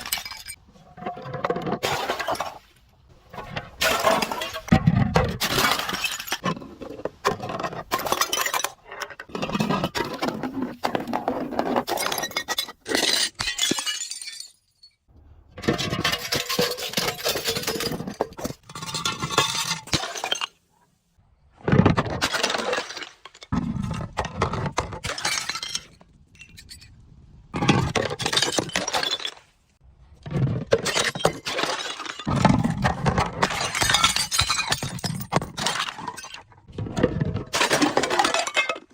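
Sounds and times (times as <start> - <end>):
glass crunching and clinking: 0.0 - 0.6, 5.4 - 6.6, 7.6 - 15.0, 15.7 - 20.6, 22.2 - 27.0, 27.6 - 29.5, 30.3 - 36.5, 37.3 - 38.9.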